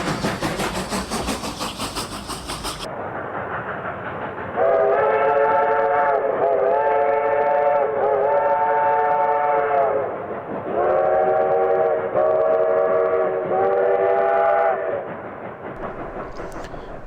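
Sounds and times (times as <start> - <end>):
steam locomotive whistle blasts: 4.6 - 10.1, 10.8 - 15.0.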